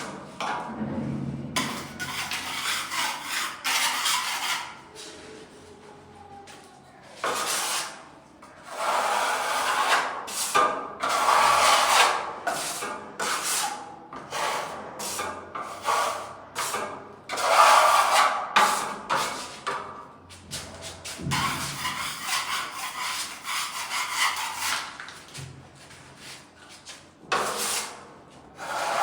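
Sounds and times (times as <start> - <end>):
hand tool rasping on surface: 21.3 - 24.9.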